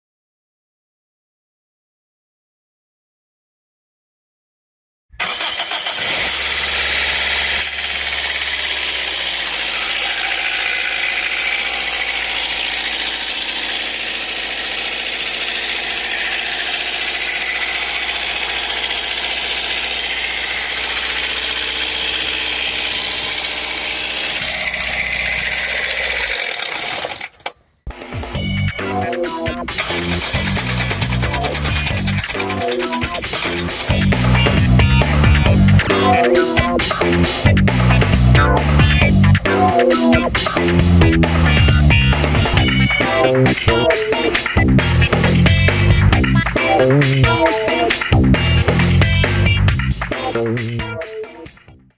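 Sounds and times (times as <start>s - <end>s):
car engine running with rattle: 5.2s - 27.3s, 29.8s - 35.9s.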